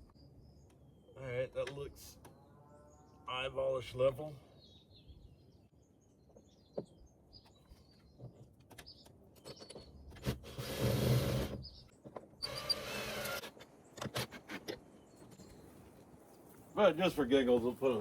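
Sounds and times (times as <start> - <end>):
faint bird chirps: 0.0 - 10.2
cordless drill driving screws: 10.2 - 11.7, 12.4 - 14.8.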